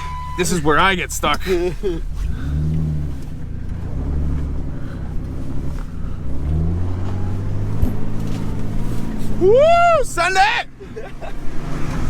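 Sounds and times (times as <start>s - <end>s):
engine revving: 0.0s - 9.4s.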